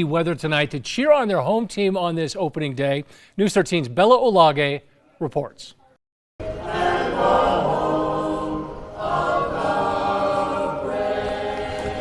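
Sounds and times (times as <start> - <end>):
choir singing held notes: 6.4 - 12.0.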